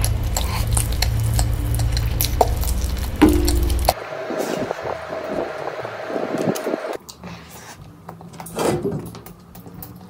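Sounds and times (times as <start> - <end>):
wet chewing of food: 0.0 - 4.0
steady hum: 0.0 - 7.0.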